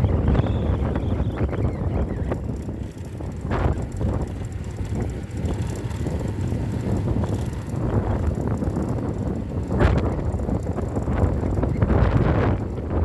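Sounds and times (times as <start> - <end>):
motorcycle rumble: 0.0 - 13.0
wind buffeting microphone: 0.0 - 13.0.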